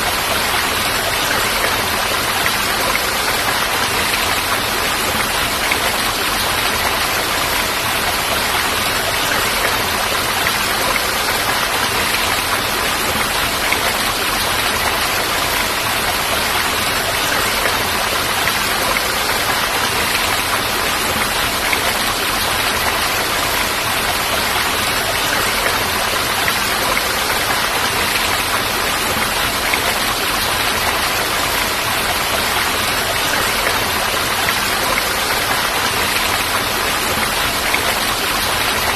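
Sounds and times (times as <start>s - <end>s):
falling water rushing: 0.0s - 38.9s.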